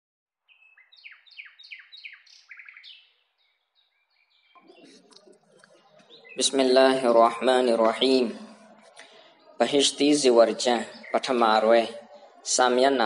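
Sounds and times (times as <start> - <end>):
bird chirping: 0.4 - 13.0
faint background noise: 0.9 - 13.0.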